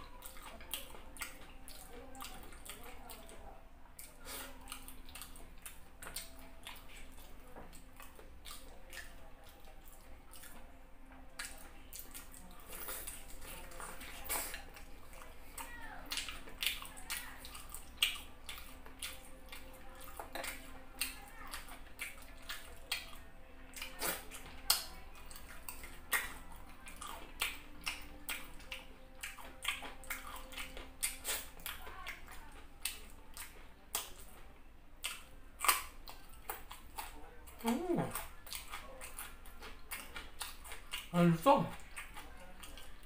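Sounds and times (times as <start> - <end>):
wet chewing and lip smacking: 0.0 - 43.0
carrot crunch bite: 29.2 - 31.8.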